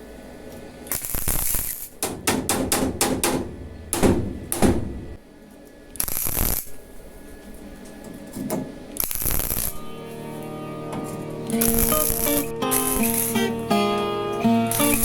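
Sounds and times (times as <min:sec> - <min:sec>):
sharp clicks and knocks: 0:02.0 - 0:05.2.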